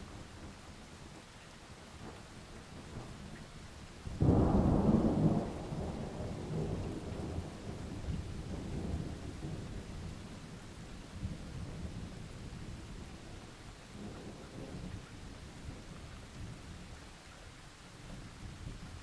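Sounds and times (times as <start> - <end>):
steady rain: 0.0 - 19.0
thunder rumbling: 4.1 - 13.1.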